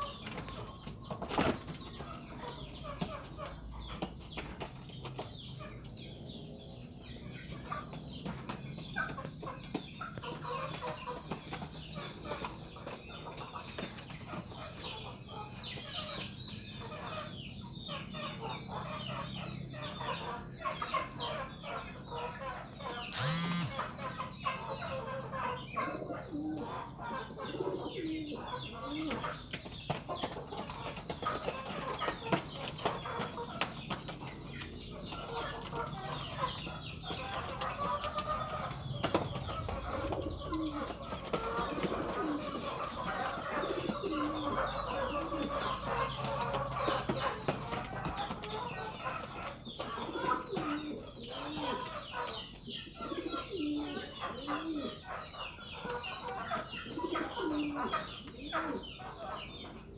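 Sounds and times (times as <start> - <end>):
chatter of many birds: 0.0 - 59.9
pigeons cooing: 0.0 - 59.9
fowl clucking: 20.2 - 29.4
loud rising bird call: 23.1 - 24.0.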